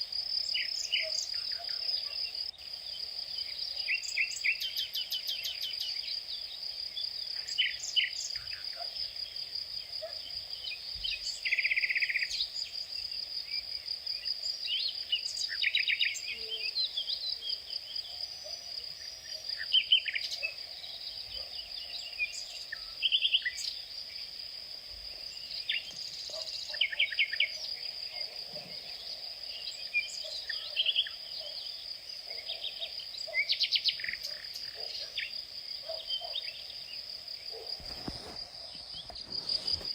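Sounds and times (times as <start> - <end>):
insects trilling: 0.0 - 39.9
birds chirping and trilling: 25.3 - 36.8.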